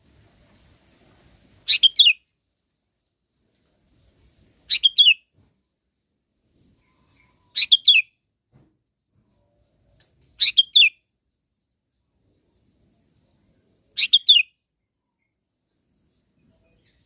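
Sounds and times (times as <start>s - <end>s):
bulbul calling: 1.7s - 2.2s, 4.7s - 5.2s, 7.1s - 8.1s, 10.4s - 11.0s, 14.0s - 14.5s.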